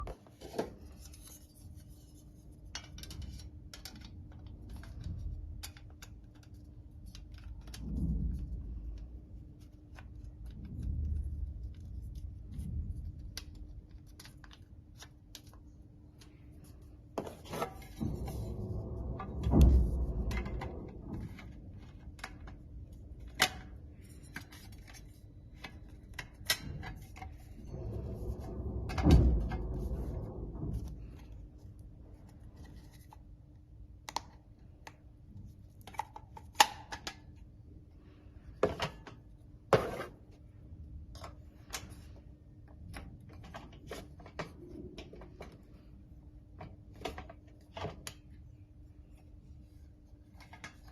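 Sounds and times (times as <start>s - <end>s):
low rumbling thump: 7.8s - 9.4s, 17.8s - 23.3s, 26.7s - 32.6s.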